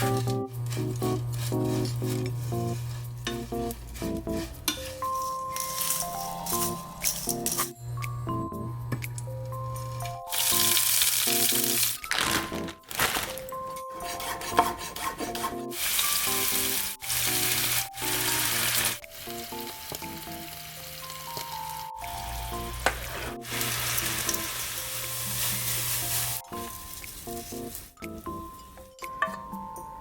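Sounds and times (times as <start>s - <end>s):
light background music: 0.0s - 30.0s
food sizzling in oil: 10.3s - 12.1s, 15.8s - 28.0s.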